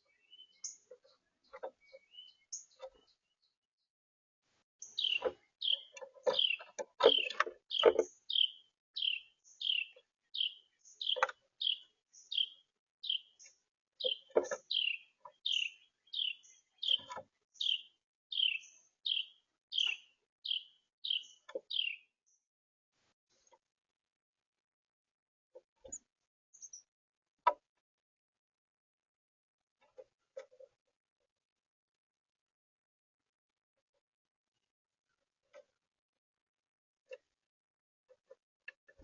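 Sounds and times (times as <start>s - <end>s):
small bird chirping: 0.0s - 3.6s, 4.8s - 22.5s, 25.8s - 26.9s.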